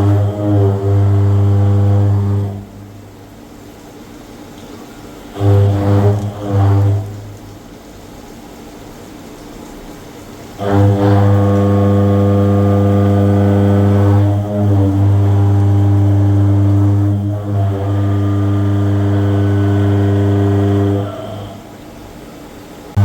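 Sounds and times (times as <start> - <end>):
milling machine motor hum: 17.7 - 21.7.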